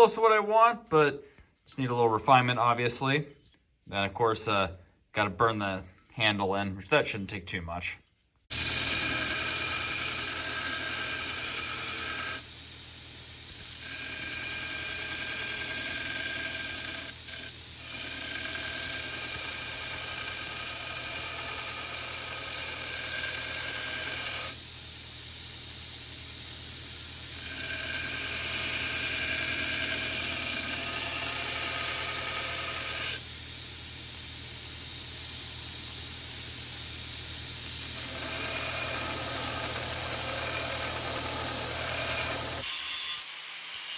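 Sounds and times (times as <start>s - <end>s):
grinding steel blade: 0.0s - 4.6s, 5.2s - 43.9s
grinder motor humming: 8.5s - 42.7s.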